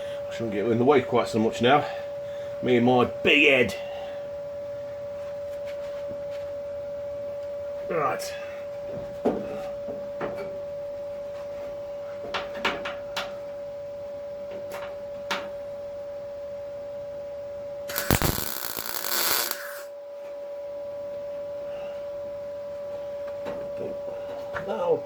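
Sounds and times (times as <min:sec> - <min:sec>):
steady high hum: 0:00.0 - 0:09.9, 0:13.4 - 0:25.0
welding crackle: 0:17.9 - 0:19.9.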